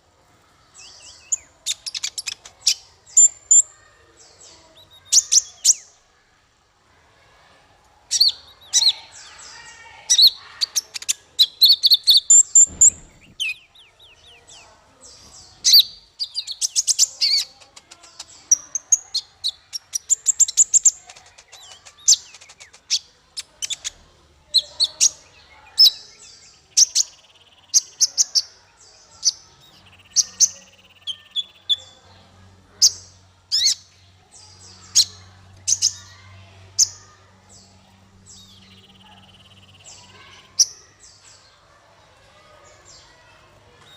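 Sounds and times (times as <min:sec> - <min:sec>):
songbird chirping and trilling: 0:00.0 - 0:43.9.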